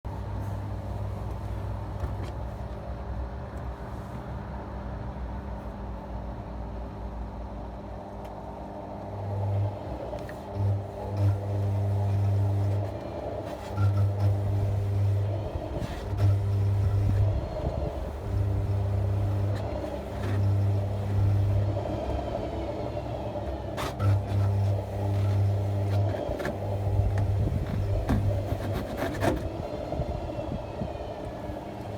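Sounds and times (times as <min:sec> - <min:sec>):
washing machine motor labouring: 0:09.1 - 0:31.9
machine whine: 0:09.4 - 0:31.9.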